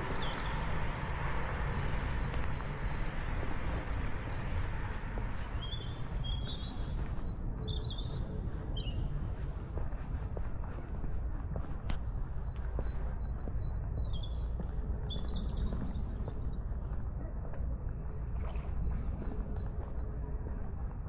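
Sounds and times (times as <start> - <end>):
small birds chirping: 0.0 - 4.6, 5.4 - 9.6, 11.9 - 16.9.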